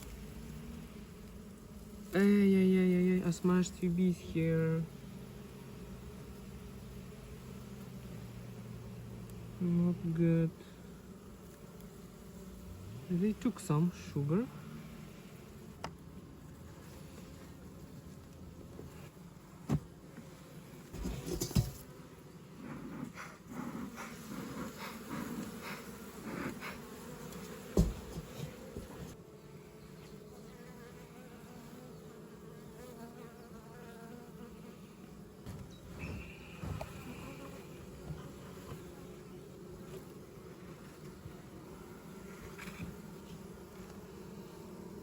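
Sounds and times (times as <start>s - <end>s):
honeybees buzzing: 0.0s - 45.0s
knocks and rustles: 20.9s - 21.9s, 27.4s - 29.1s.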